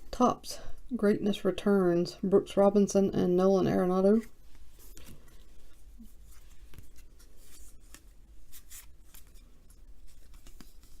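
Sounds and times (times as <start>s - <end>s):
cards sliding and flipping: 4.5s - 11.0s.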